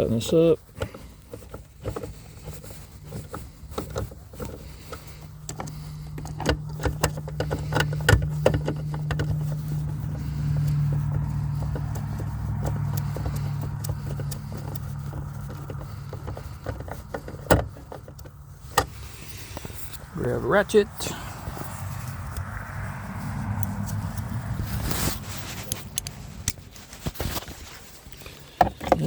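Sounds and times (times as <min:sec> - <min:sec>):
socket clicking on metal nut: 0:03.7 - 0:10.2.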